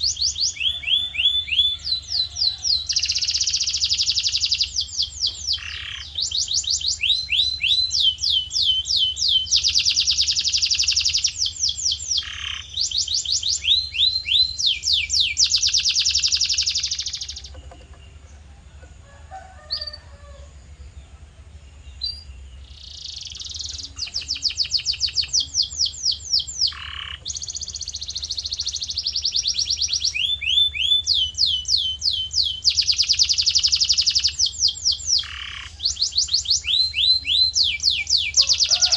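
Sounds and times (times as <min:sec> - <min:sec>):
canary singing trills: 0:00.0 - 0:38.9
steady low hum: 0:01.8 - 0:30.4.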